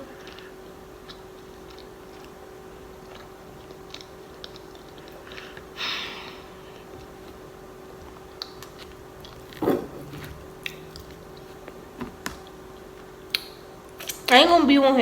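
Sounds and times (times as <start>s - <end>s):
person chewing food: 0.0s - 14.3s
wet mouth clicks and smacks: 13.3s - 14.3s.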